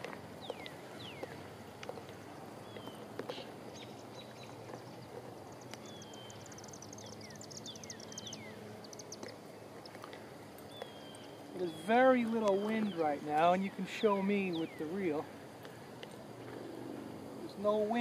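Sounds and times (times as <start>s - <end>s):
faint outdoor hush: 0.0s - 18.0s
birds whistling: 0.4s - 1.5s, 2.6s - 15.8s.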